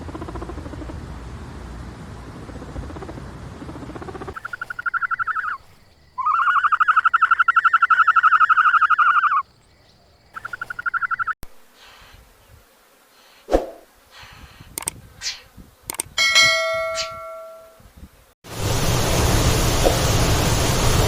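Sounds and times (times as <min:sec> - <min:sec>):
animal calling in pulsed trills: 0:04.4 - 0:09.5, 0:10.3 - 0:11.4
sharp click: 0:14.8 - 0:15.0, 0:15.9 - 0:16.2.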